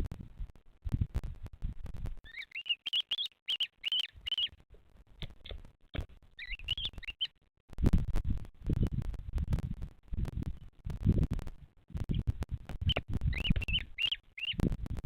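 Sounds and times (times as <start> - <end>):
bird chirping: 2.2 - 4.6, 6.3 - 7.4, 12.1 - 14.7.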